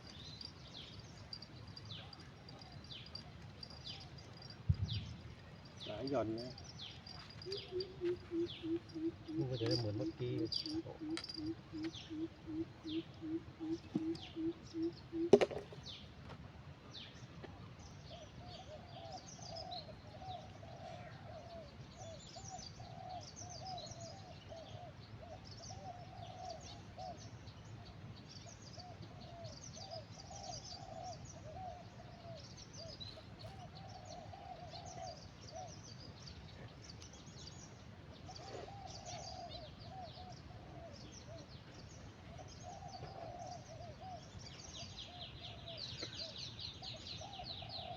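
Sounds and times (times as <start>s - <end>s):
small birds chirping: 0.0s - 16.1s, 16.9s - 47.9s
bird repeating low notes: 5.8s - 15.7s.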